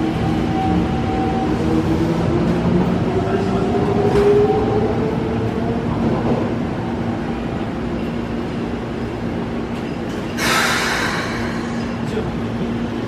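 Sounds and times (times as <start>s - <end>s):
compressed air hiss: 10.4s - 11.9s.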